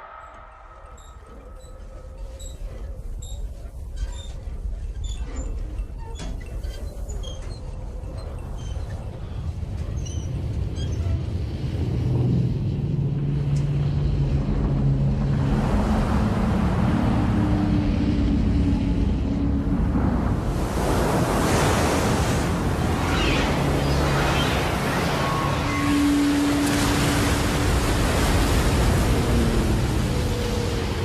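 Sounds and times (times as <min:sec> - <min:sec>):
surging water rumble: 0:07.8 - 0:31.0.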